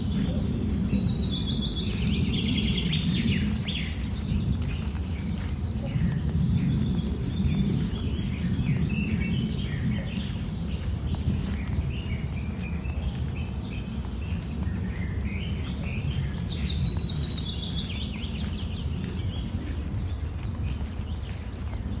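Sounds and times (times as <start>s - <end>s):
birds chirping and singing: 0.0s - 22.0s
steady low rumble: 0.0s - 22.0s.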